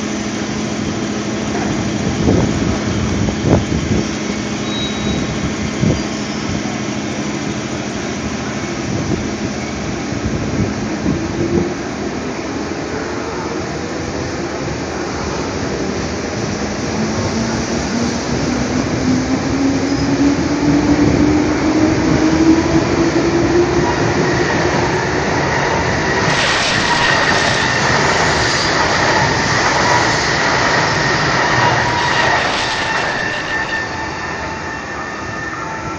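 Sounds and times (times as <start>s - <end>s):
high wheel squeal: 4.0s - 6.8s, 24.3s - 35.9s
electric train motor hum rising: 16.8s - 35.0s
wheel and rail clatter: 23.8s - 34.1s.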